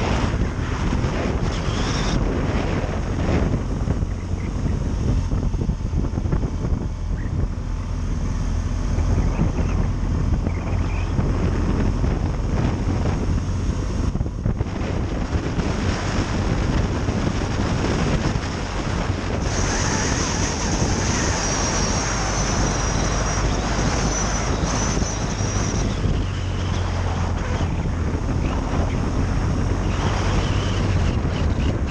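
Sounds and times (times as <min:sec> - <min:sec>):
low rumble: 0:00.0 - 0:31.9
wind buffeting microphone: 0:00.0 - 0:31.9
thin high whine: 0:19.4 - 0:26.2.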